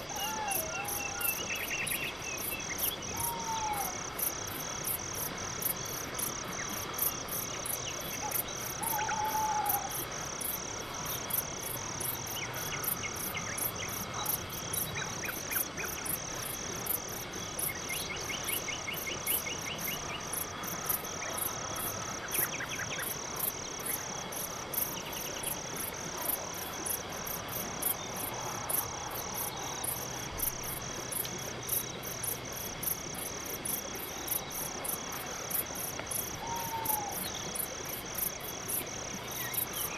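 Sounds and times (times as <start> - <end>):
faint bird calls and trills: 0.0 - 4.8, 6.5 - 10.1, 36.2 - 38.0
crickets chirping: 0.0 - 39.9.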